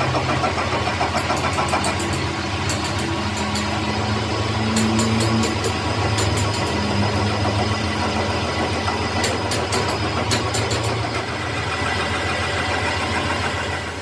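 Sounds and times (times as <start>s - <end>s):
sharp metallic clicks: 0.8s - 3.8s.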